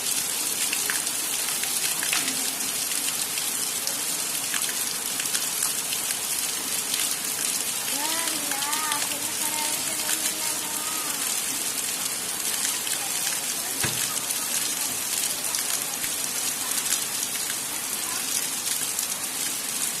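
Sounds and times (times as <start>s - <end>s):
heavy rain falling: 0.0s - 20.0s
dull knock: 13.8s - 14.1s.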